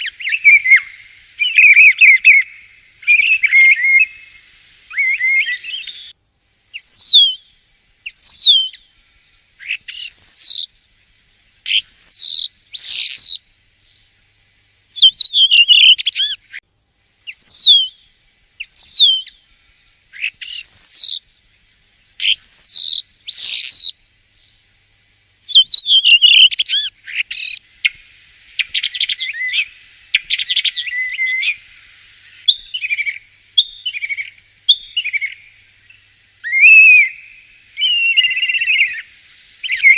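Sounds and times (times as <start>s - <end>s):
starling singing: 0.0s - 4.3s, 9.6s - 10.7s, 11.7s - 13.4s, 17.3s - 18.0s, 20.2s - 21.2s, 22.2s - 23.9s, 25.5s - 27.6s, 36.4s - 39.0s, 39.6s - 39.9s.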